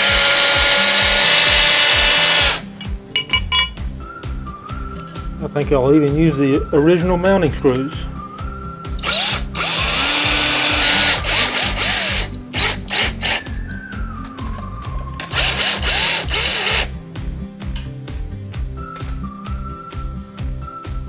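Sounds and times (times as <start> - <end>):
cordless drill driving screws: 0.0 - 2.7, 9.0 - 13.7, 15.2 - 16.9
background music: 0.0 - 21.0.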